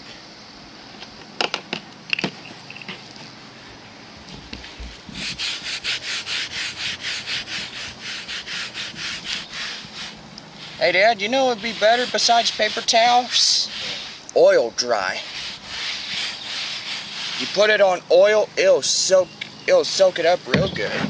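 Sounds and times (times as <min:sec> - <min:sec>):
paper towel rubbing: 0:04.3 - 0:18.5.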